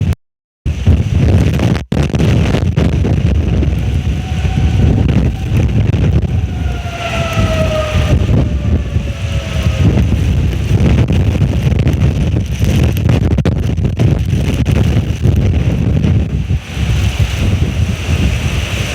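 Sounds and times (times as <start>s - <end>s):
strong wind buffeting microphone: 0.7s - 18.9s
faint falling whistling tone: 3.7s - 11.0s.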